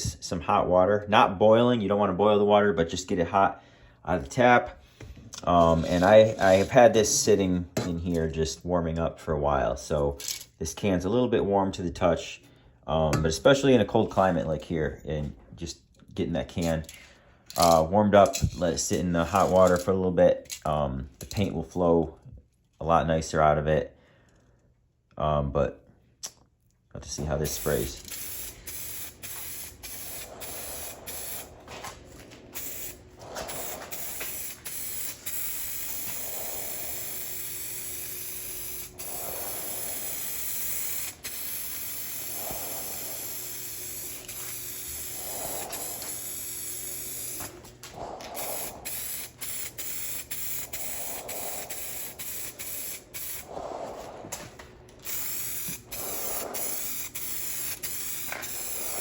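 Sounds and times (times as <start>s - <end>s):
aerosol spray can hissing: 27.4s - 54.2s, 55.0s - 59.0s.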